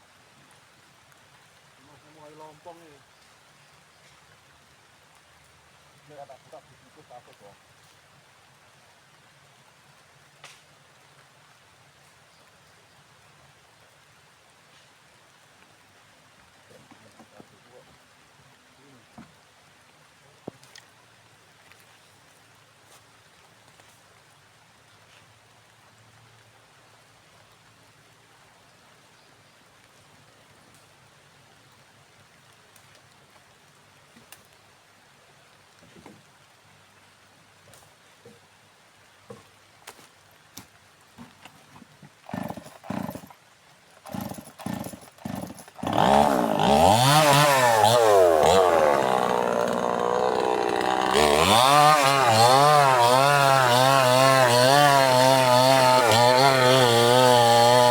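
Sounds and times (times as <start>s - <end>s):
chainsaw starting and revving: 42.2s - 43.4s, 44.0s - 57.9s.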